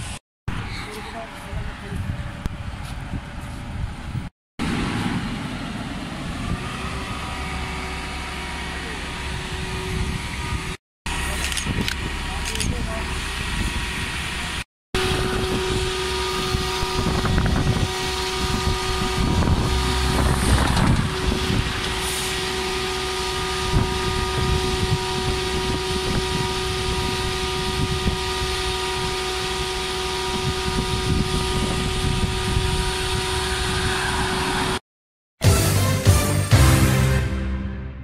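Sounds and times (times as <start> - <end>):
low traffic rumble: 0.0 - 34.8
vehicle engine idling: 4.7 - 27.8.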